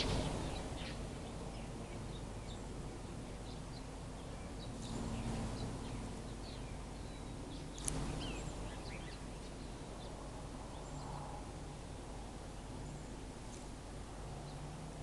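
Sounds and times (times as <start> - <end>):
small birds chirping: 0.0 - 15.0
steady low rumble: 0.0 - 15.0
sharp click: 7.8 - 8.1.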